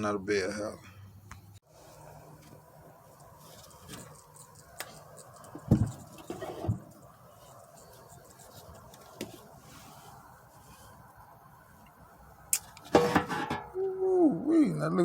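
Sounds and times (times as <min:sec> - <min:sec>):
parts clicking and scraping: 0:03.1 - 0:09.4.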